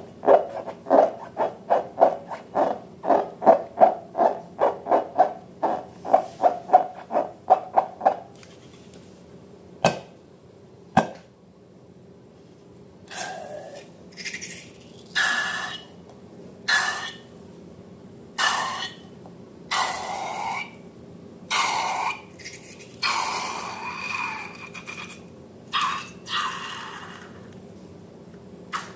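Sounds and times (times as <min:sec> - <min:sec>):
slime squishing and rubbing: 0:00.3 - 0:08.0.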